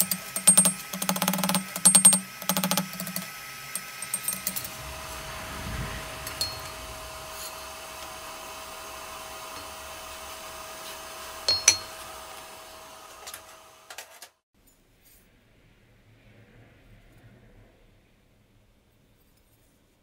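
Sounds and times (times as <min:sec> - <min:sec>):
steel clinking against steel: 0:00.0 - 0:04.7, 0:11.5 - 0:12.0
blower motor humming with whine: 0:00.0 - 0:14.1.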